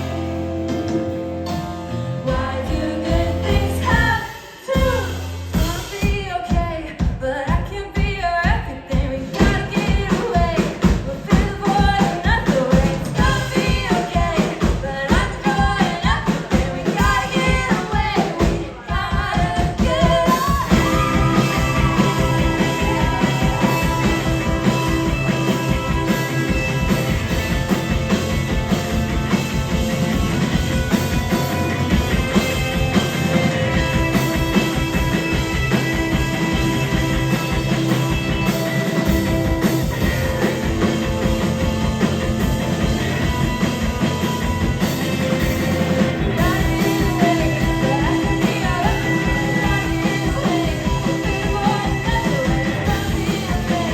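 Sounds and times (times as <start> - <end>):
live rock band playing: 0.0 - 53.9
person singing: 2.2 - 6.7, 7.3 - 26.0, 46.2 - 53.9.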